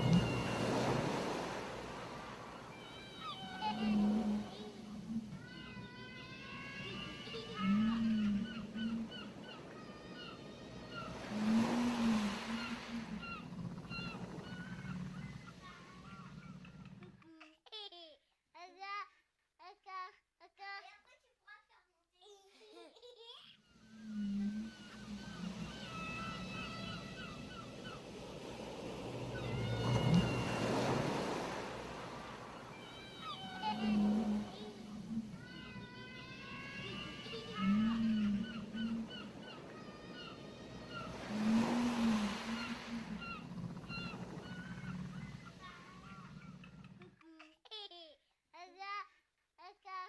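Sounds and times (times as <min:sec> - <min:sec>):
seagulls calling: 0:00.0 - 0:16.8, 0:23.8 - 0:46.9
wave washing in: 0:00.0 - 0:16.8, 0:23.8 - 0:46.8
low hoots: 0:00.0 - 0:17.1, 0:23.8 - 0:47.1.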